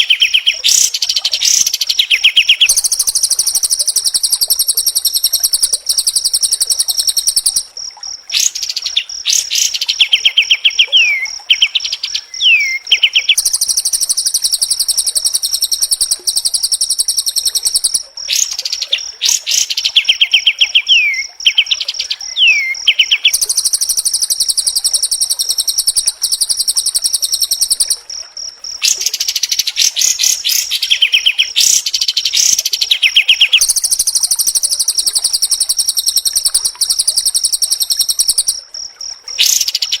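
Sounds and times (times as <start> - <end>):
bird rattling trills: 0.0 - 7.6, 28.8 - 38.6.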